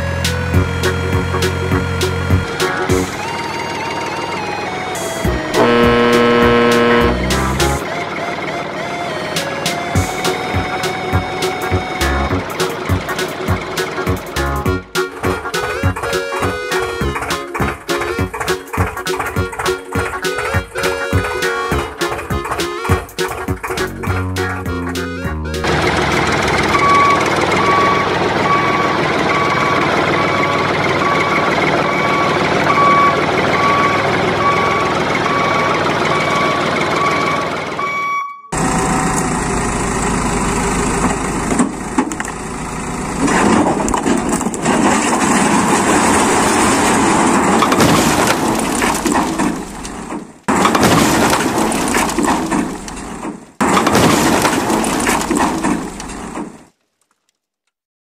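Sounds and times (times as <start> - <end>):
truck engine: 0.0 - 57.2
reversing beeper beeping: 3.5 - 7.4, 26.5 - 39.2.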